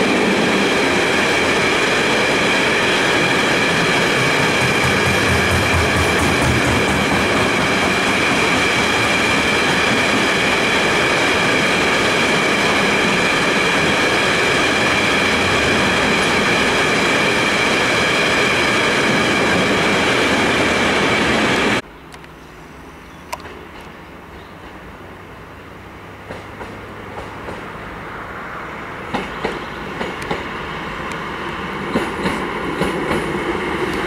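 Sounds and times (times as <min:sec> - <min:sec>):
train wheels on rails: 0:00.0 - 0:21.8, 0:26.2 - 0:28.0, 0:29.0 - 0:34.0.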